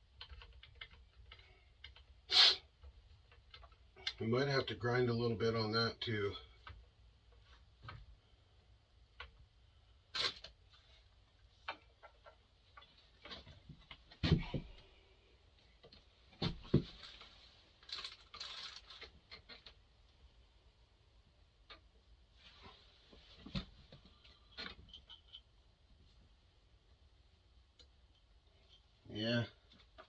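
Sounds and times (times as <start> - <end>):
chainsaw parts clicking and knocking: 0.1 - 2.2.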